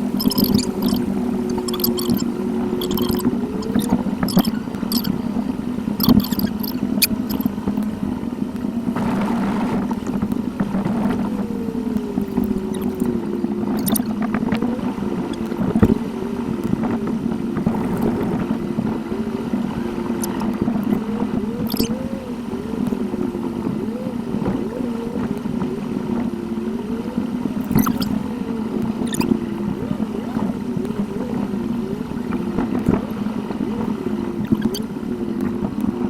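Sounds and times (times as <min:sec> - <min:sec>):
engine and road hum: 0:00.0 - 0:36.0
sharp clicks: 0:00.2 - 0:02.2, 0:02.8 - 0:05.1, 0:06.0 - 0:07.5.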